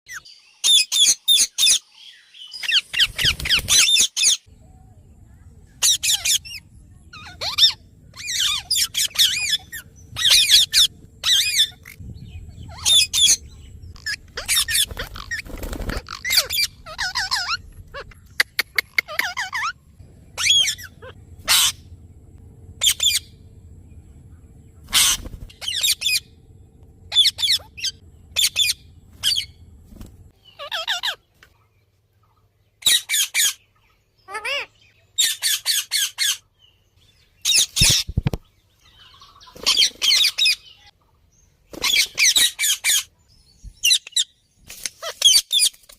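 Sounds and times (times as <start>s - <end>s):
parrot squawking: 5.8s - 6.6s, 7.2s - 12.0s, 12.6s - 13.4s, 14.0s - 19.8s, 20.4s - 21.9s, 22.8s - 23.3s, 24.8s - 26.3s, 27.1s - 29.6s, 30.5s - 31.2s, 34.3s - 36.4s
sharp clicks: 18.2s - 19.2s.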